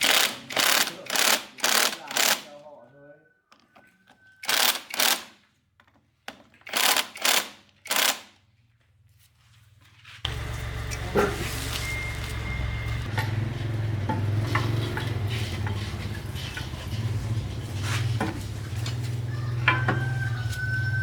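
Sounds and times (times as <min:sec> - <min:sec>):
machine humming: 0:10.3 - 0:14.4.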